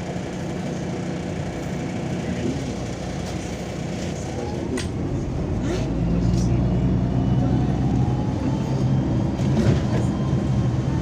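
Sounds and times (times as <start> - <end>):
bus diesel engine drone: 0.0 - 11.0
bus rumble: 0.0 - 11.0.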